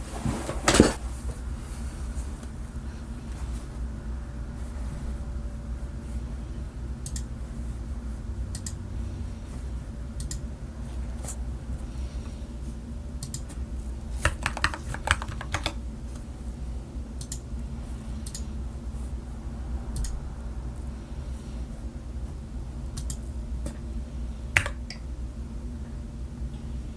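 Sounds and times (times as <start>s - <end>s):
steady low hum: 0.0s - 26.9s
mechanical keyboard keystrokes: 14.2s - 15.8s.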